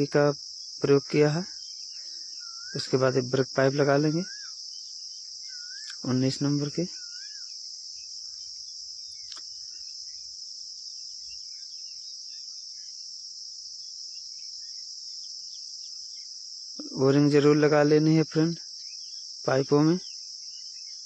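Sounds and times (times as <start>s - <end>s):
crickets chirring: 0.0s - 21.0s
faint click: 9.1s - 9.5s.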